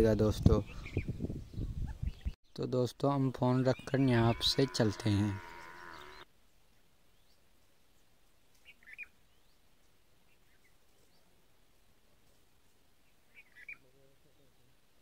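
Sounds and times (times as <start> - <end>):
bird chirping: 5.4 - 6.3, 8.5 - 12.0, 13.0 - 14.8.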